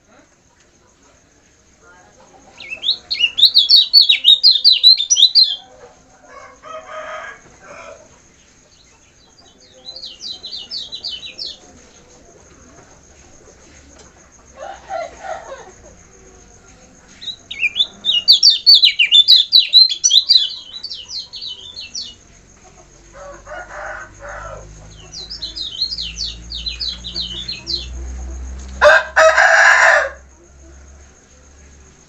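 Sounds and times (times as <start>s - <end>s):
harsh bird calls: 2.5s - 5.7s, 17.1s - 22.3s, 23.2s - 30.2s
bird twittering: 2.6s - 5.6s, 17.2s - 22.2s, 24.9s - 28.0s.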